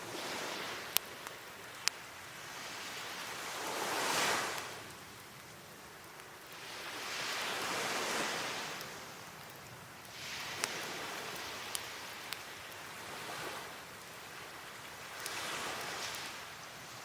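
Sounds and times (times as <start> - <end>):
wood fire popping: 0.0 - 2.6, 4.5 - 17.0
sea waves washing onto shore: 0.0 - 17.0.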